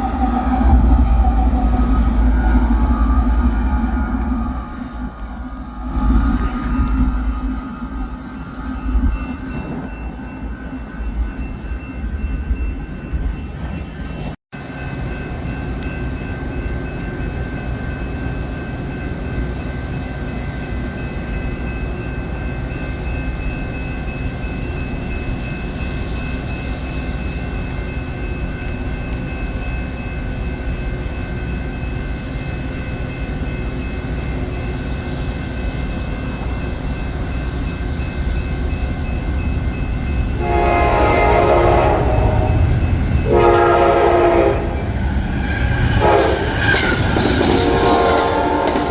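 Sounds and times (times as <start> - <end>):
train rumbling by: 0.0 - 48.9.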